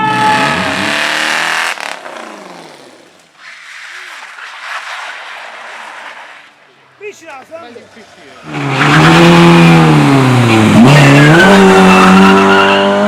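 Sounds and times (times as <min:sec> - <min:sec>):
race car passing: 0:08.0 - 0:13.0.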